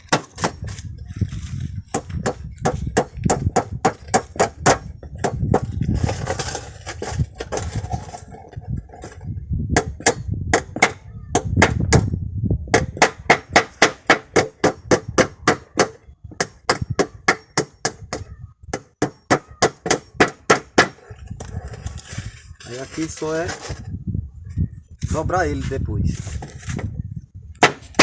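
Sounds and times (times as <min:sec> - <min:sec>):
hammer striking nails: 0:00.0 - 0:00.8, 0:01.9 - 0:05.7, 0:09.8 - 0:12.1, 0:12.7 - 0:21.0, 0:27.6 - 0:28.0.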